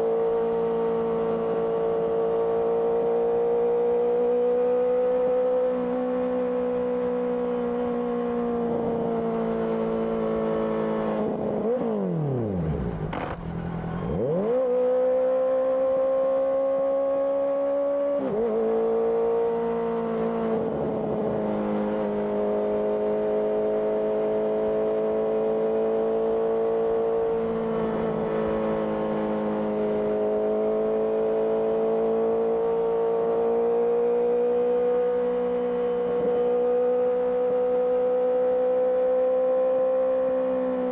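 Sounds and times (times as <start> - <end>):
motorcycle engine running: 12.5 - 14.4.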